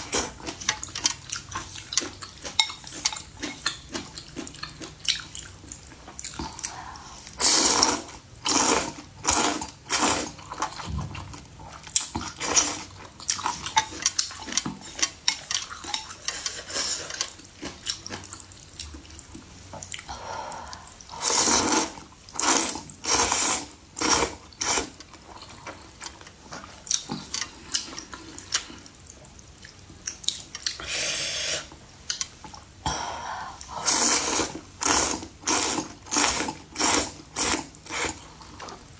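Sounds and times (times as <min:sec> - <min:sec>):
slurping soup: 0:06.4 - 0:10.9, 0:20.7 - 0:25.0, 0:33.6 - 0:38.7.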